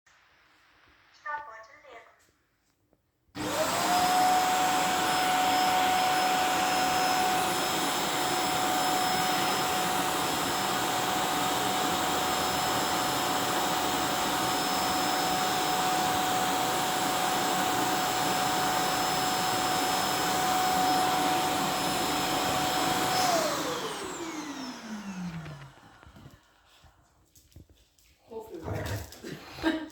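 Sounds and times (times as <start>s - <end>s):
electric motor and fan whining: 3.4s - 26.6s.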